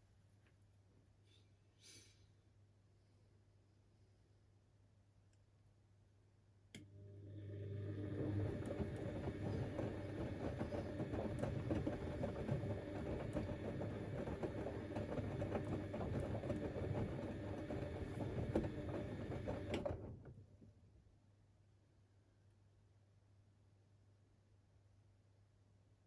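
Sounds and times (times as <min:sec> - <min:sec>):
washing machine drum tumbling: 0:08.0 - 0:20.0.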